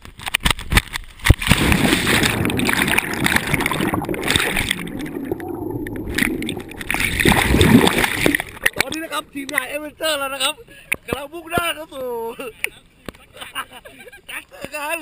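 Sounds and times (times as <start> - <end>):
water sloshing and gurgling: 1.2 - 9.8.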